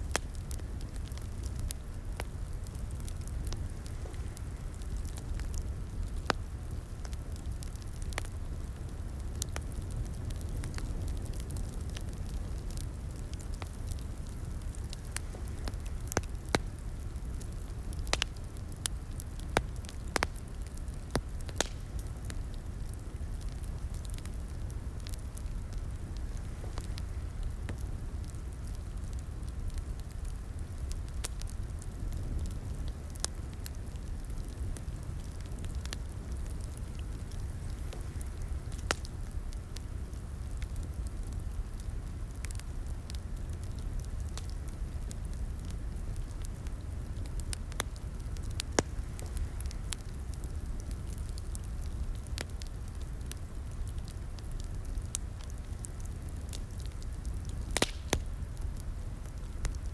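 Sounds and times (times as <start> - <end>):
fire pops and snaps: 0.0 - 59.9
wood fire burning rumble: 0.0 - 59.9.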